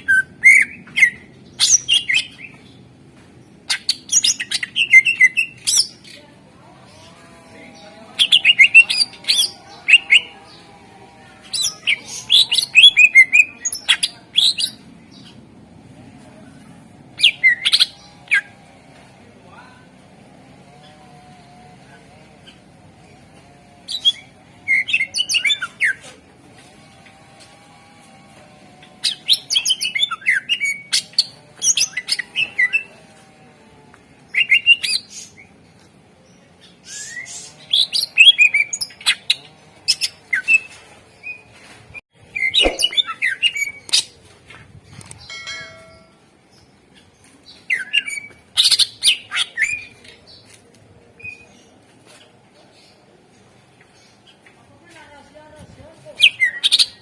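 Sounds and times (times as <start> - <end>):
bird singing chirps and whistles: 42.4 - 43.8.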